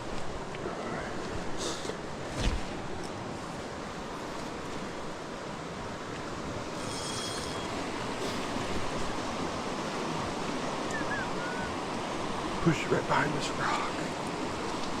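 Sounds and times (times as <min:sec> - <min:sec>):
creek water rushing: 0:00.0 - 0:15.0
faint high rattle: 0:06.7 - 0:08.5.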